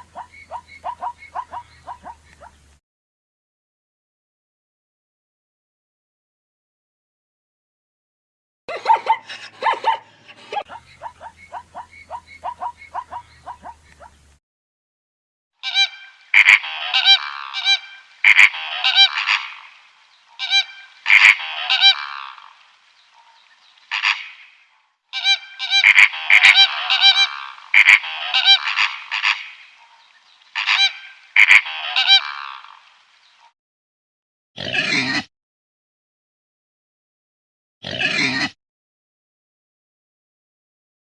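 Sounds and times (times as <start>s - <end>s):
bird honking calls: 0.0s - 2.6s, 15.6s - 24.5s, 25.1s - 32.8s.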